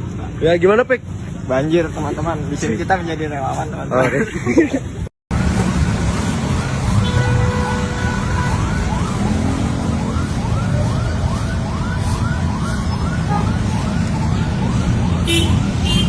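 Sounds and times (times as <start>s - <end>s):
emergency vehicle siren: 5.3s - 16.0s.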